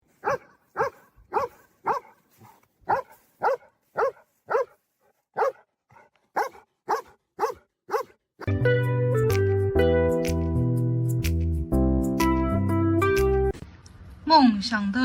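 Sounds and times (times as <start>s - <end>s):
dog barking: 0.2s - 8.2s.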